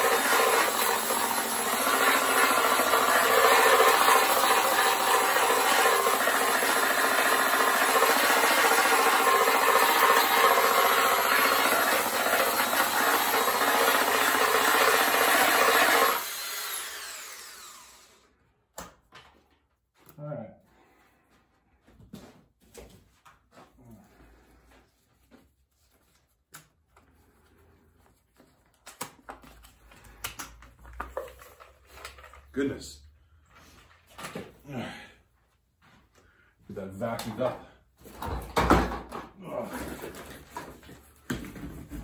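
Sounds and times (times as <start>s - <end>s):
mini grinder cutting fiberglass: 0.0s - 18.3s.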